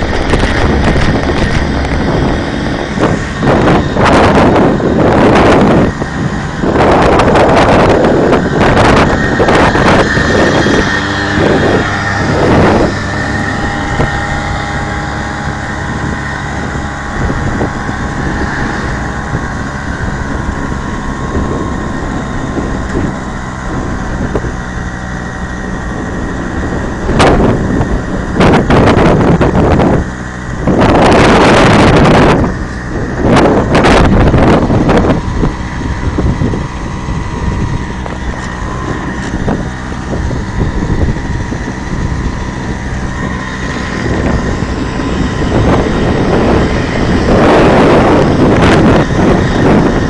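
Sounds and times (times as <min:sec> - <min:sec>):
moped two-stroke engine running: 0:00.0 - 0:50.0
wind gusts on microphone: 0:00.0 - 0:50.0.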